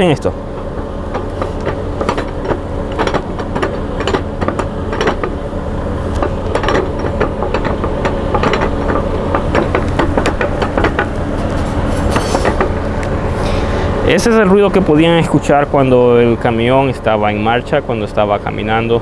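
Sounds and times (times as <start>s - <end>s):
knocks and rattles from axles: 0.0s - 19.0s
truck engine drone: 0.0s - 19.0s.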